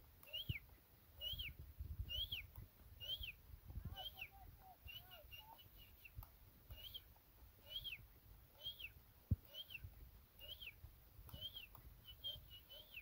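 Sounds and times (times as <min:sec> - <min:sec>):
bird whistled call: 0:00.3 - 0:00.6, 0:01.2 - 0:01.5, 0:02.1 - 0:03.4, 0:04.0 - 0:06.1, 0:06.7 - 0:07.0, 0:07.6 - 0:08.0, 0:08.6 - 0:13.0.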